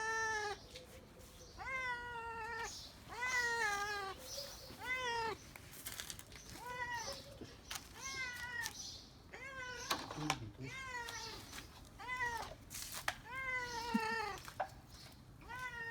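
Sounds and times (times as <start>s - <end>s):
cat meowing: 0.0s - 0.6s, 1.5s - 5.4s, 6.6s - 12.6s, 13.2s - 14.5s, 15.4s - 15.9s.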